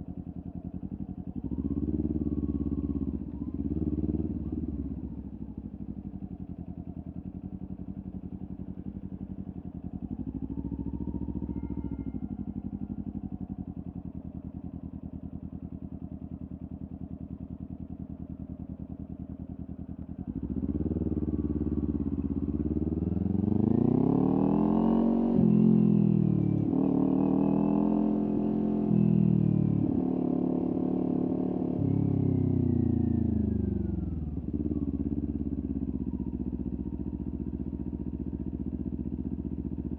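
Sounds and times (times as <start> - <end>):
motorcycle engine revving: 0.4 - 15.3, 20.0 - 39.9.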